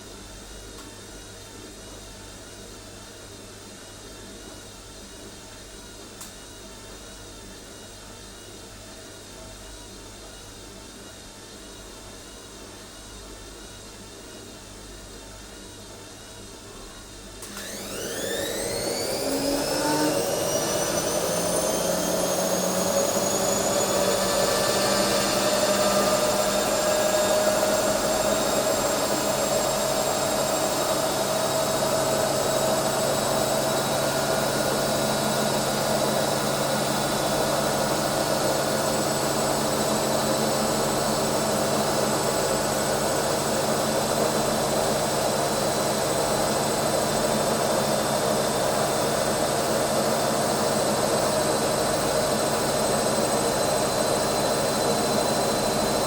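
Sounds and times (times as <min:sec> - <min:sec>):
appliance motor whining: 0:17.4 - 0:41.3.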